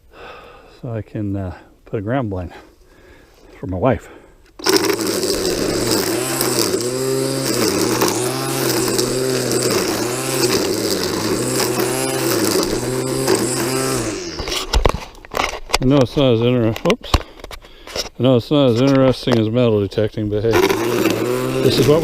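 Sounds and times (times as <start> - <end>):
small gasoline engine cutting brush: 4.6 - 15.7, 20.4 - 22.0.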